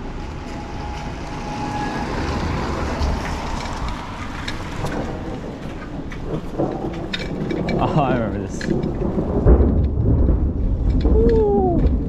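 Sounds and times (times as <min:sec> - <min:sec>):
car driving past: 0:00.0 - 0:05.5
wind rumbling on microphone: 0:00.0 - 0:12.0.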